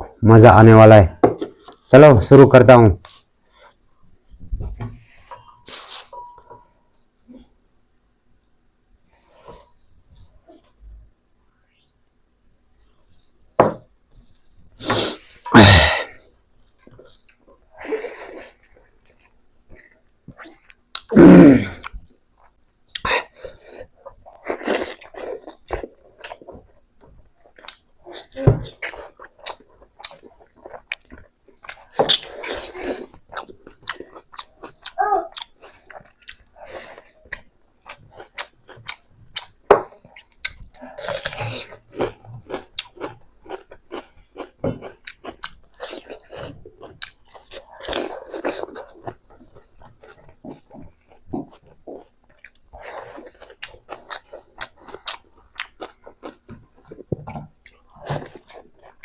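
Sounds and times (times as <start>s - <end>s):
person chewing and crunching: 14.3s - 59.0s.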